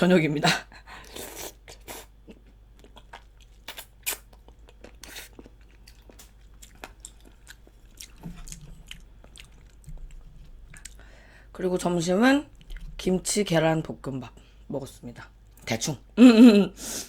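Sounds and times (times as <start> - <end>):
chewing with wet smacking: 1.0 - 11.0.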